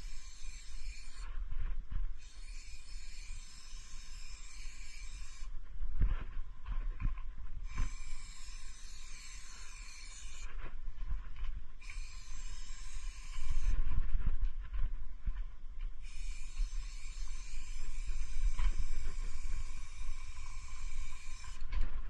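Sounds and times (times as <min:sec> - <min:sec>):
spray paint can hissing: 0:00.0 - 0:01.2, 0:02.2 - 0:05.5, 0:07.7 - 0:10.5, 0:11.8 - 0:13.8, 0:16.0 - 0:21.7.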